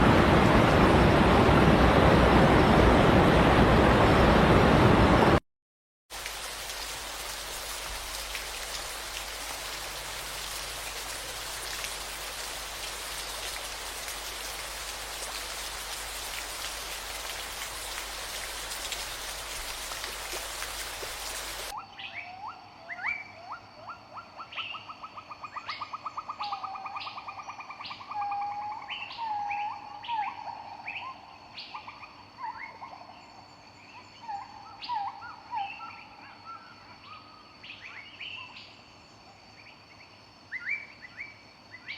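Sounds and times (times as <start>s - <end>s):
steady rain falling: 6.1s - 21.8s.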